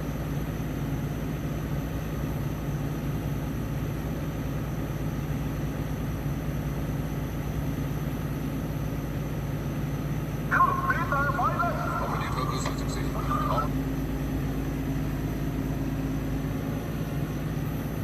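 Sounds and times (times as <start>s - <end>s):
excavator diesel engine running: 10.5s - 16.7s.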